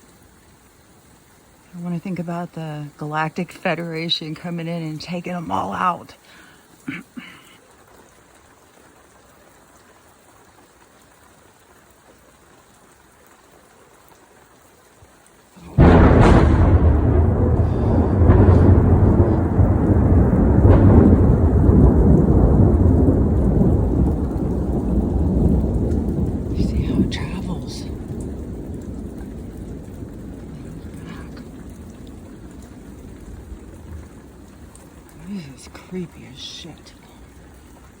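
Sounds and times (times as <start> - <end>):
thunder rumbling: 15.6 - 38.0.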